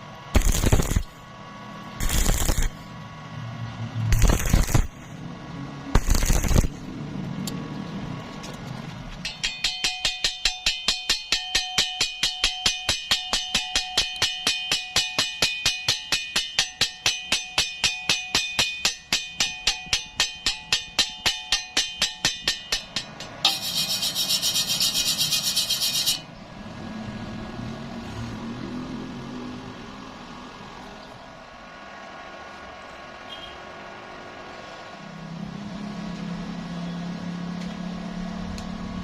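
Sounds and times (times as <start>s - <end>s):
hammering on steel: 9.2s - 26.3s.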